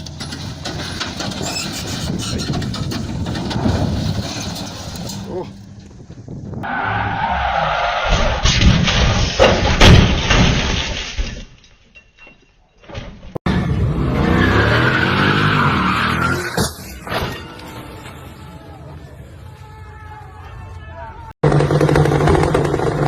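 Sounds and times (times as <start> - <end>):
road and engine noise: 0.0 - 9.6, 13.2 - 23.0
engine revving: 13.5 - 16.8, 21.4 - 23.0.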